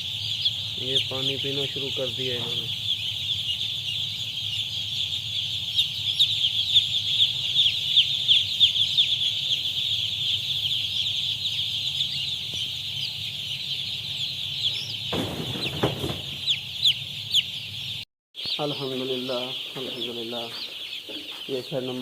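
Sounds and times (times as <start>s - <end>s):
steady low hum: 0.0s - 15.5s
chicks peeping: 0.0s - 22.0s.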